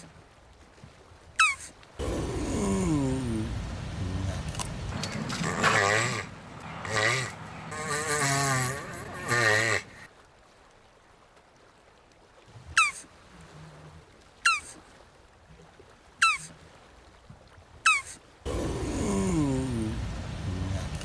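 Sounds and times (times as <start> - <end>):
tortoise clucking: 1.4 - 10.1, 17.9 - 21.0.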